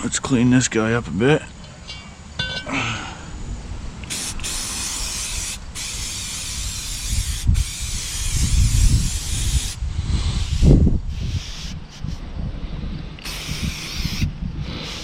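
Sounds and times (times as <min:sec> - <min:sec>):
aerosol spray hissing: 0:04.1 - 0:12.2, 0:13.2 - 0:15.0.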